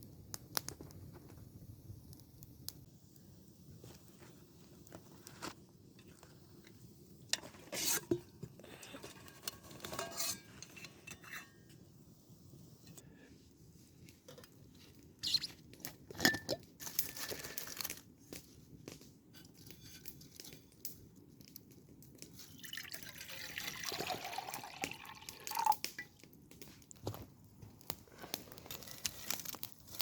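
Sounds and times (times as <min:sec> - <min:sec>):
liquid poured into a cup: 0:22.5 - 0:25.9.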